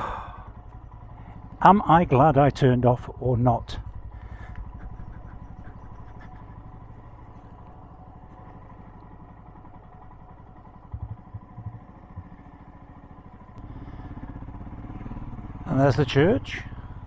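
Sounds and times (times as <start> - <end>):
motorcycle engine at low revs: 0.0 - 17.0
short knocks: 10.9 - 12.4.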